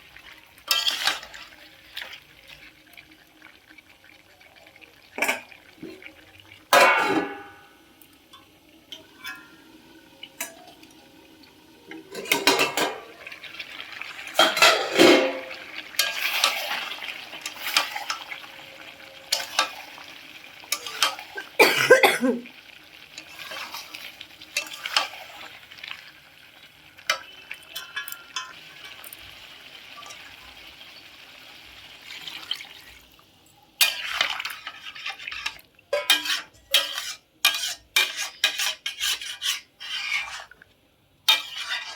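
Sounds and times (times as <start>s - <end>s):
metal spatula scraping a pan: 0.6s - 2.1s, 12.1s - 21.5s, 23.1s - 26.0s, 27.0s - 30.6s, 33.8s - 40.6s, 41.2s - 41.9s.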